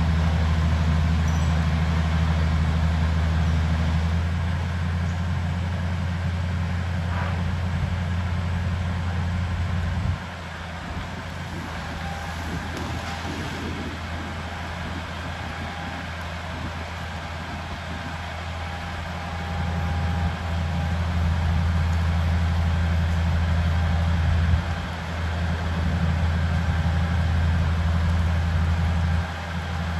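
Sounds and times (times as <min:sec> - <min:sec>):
bulldozer diesel engine drone: 0:00.0 - 0:29.9.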